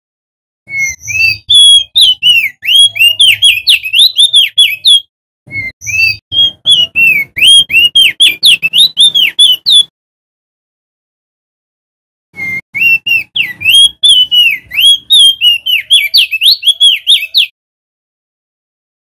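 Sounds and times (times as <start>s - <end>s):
bird singing whistled notes: 0.7s - 9.9s, 12.4s - 17.6s.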